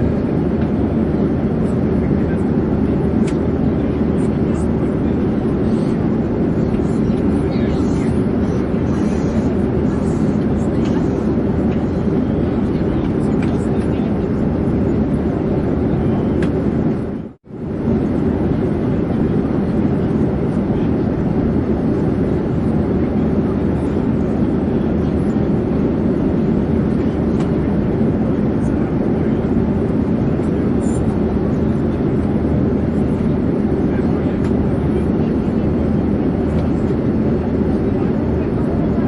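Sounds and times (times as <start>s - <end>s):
airplane drone: 0.0s - 39.0s.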